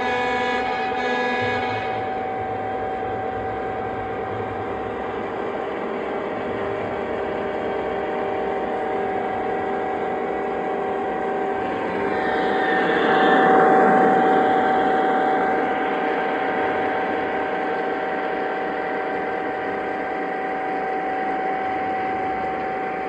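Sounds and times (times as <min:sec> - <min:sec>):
model train motor whine: 0:00.0 - 0:05.6.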